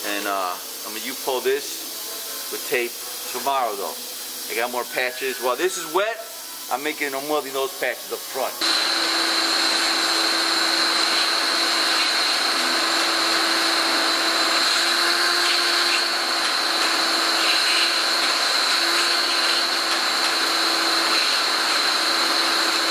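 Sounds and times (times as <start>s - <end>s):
power tool whining: 8.6s - 22.9s.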